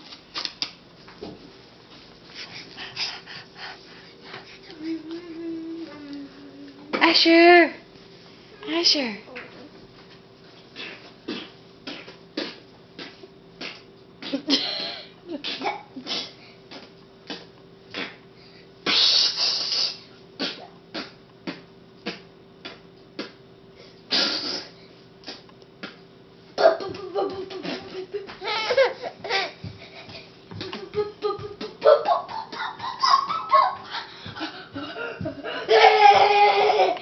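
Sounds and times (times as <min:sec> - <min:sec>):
faint steady hum: 0:00.0 - 0:37.0
child clicking and lip smacking: 0:11.9 - 0:14.4, 0:20.4 - 0:23.4
child blowing breathily: 0:24.1 - 0:24.8
child giggling: 0:26.6 - 0:37.0.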